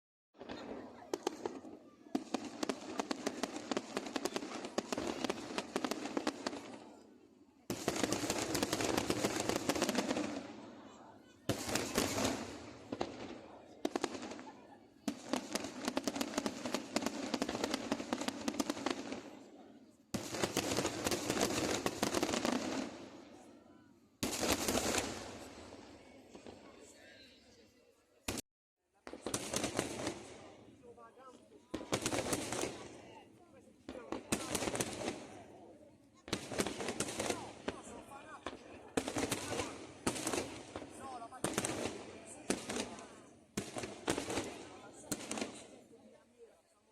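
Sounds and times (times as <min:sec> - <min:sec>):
fireworks bangs and crackles: 0:00.4 - 0:26.9, 0:29.0 - 0:46.2
hiss of firework bursts: 0:07.7 - 0:10.6, 0:11.5 - 0:19.3, 0:20.1 - 0:23.1, 0:24.2 - 0:26.5, 0:31.8 - 0:33.0, 0:33.9 - 0:35.4, 0:36.3 - 0:45.8.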